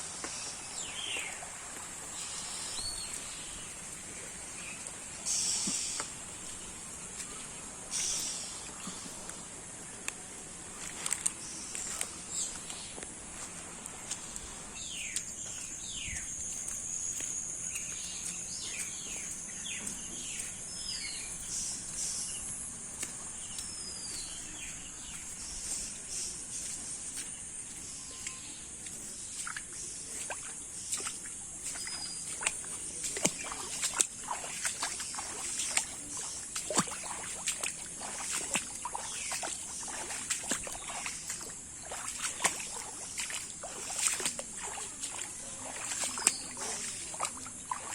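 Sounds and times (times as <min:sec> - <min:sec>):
bird chirps: 0:04.6 - 0:06.1, 0:14.8 - 0:34.0.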